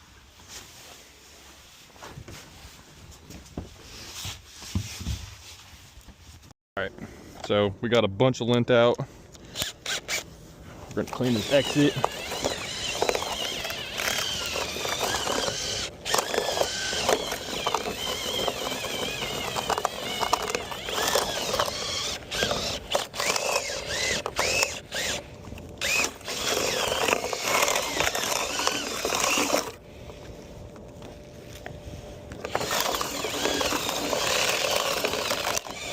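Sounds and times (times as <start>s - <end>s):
vent cleaning tool scraping duct: 10.8s - 29.8s.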